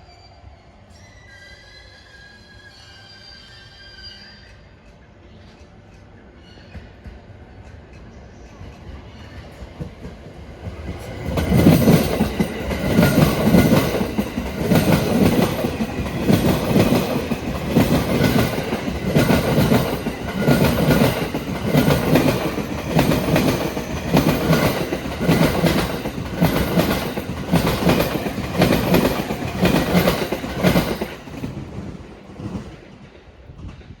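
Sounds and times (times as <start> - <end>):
train wheels clacking over rail joints: 8.8 - 34.0.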